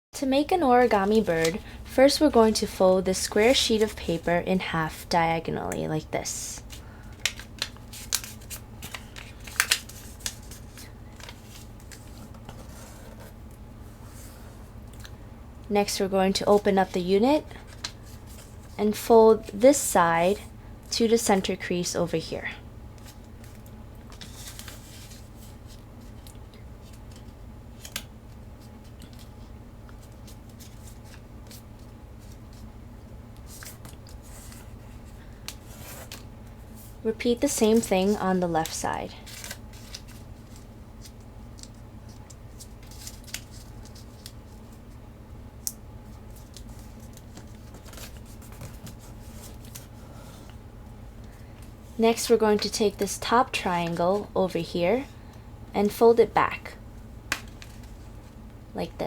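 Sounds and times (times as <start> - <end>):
paper crackling and rustling: 0.8 - 2.6, 6.6 - 14.6, 23.0 - 32.7, 33.4 - 45.0, 45.6 - 50.6, 57.3 - 58.4.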